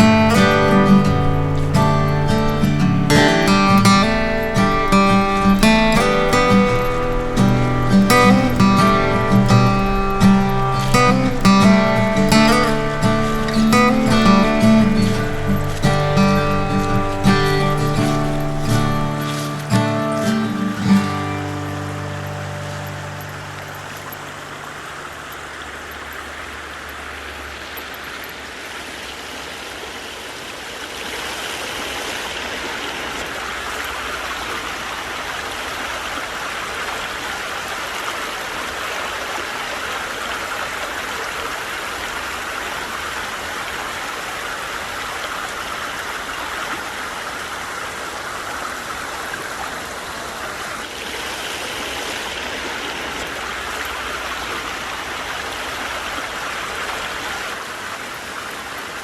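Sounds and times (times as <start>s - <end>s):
rushing stream water: 0.0s - 59.0s.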